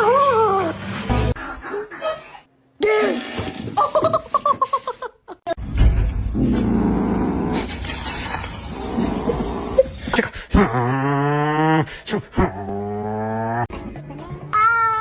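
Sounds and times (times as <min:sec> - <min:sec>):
background music: 0:00.0 - 0:01.4.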